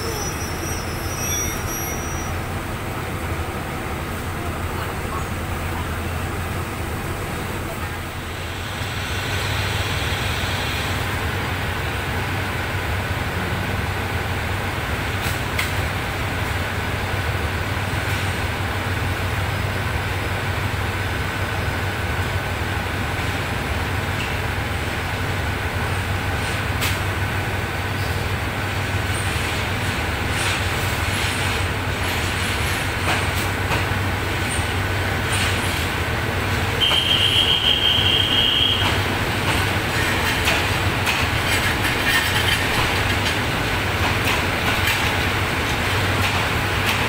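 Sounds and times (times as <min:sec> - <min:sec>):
train wheel clicks and squeaks: 0:00.0 - 0:02.4, 0:36.8 - 0:47.0
low train engine hum: 0:00.0 - 0:47.0.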